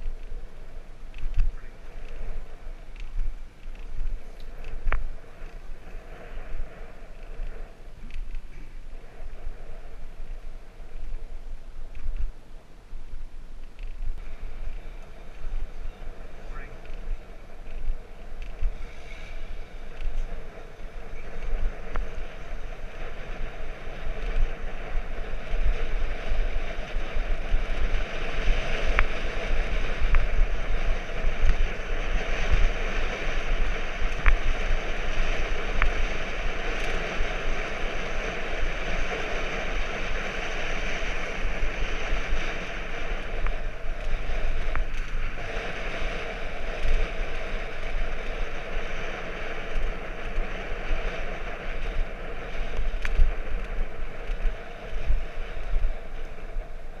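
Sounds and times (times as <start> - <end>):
bicycle tyre noise: 0.0 - 57.0
wind buffeting microphone: 0.0 - 57.0
sharp ticks: 19.9 - 56.7.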